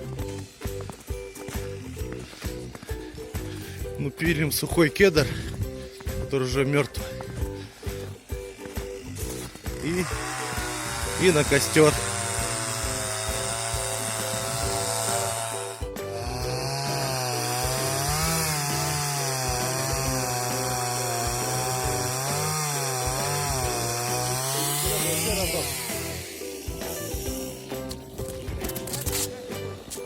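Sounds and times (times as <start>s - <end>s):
chainsaw cutting wood: 0.0s - 30.0s.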